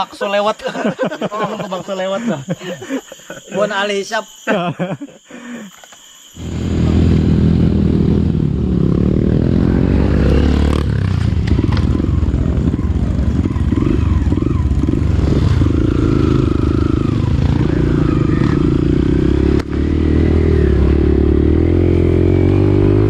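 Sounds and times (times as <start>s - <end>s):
dirt bike engine accelerating: 6.4s - 23.0s.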